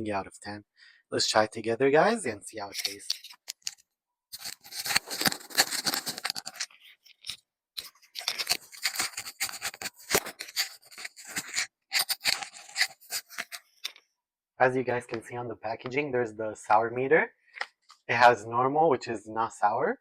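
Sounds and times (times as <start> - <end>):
plastic bag crinkling: 2.8 - 13.6.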